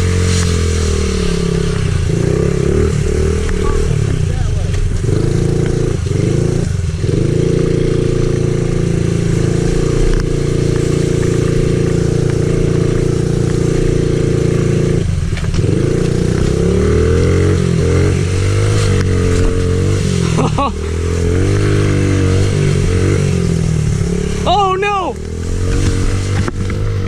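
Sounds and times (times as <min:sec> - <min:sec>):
small motorcycle engine revving: 0:00.0 - 0:27.0.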